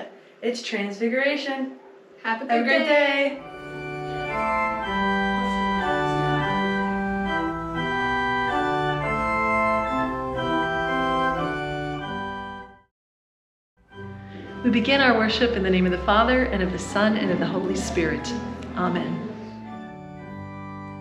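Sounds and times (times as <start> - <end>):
organ playing slow tune: 3.4 - 12.9, 13.8 - 21.0.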